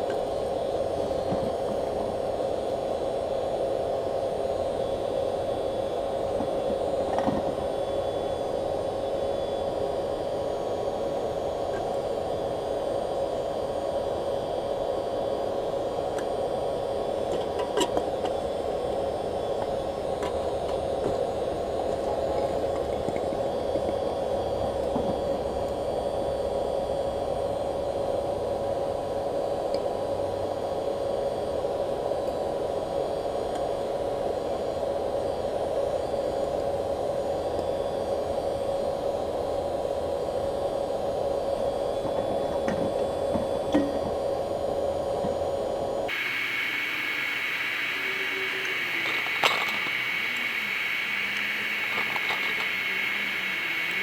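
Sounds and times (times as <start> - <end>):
electric blower whine and hiss: 46.1 - 54.0
faint clicks: 46.1 - 54.0.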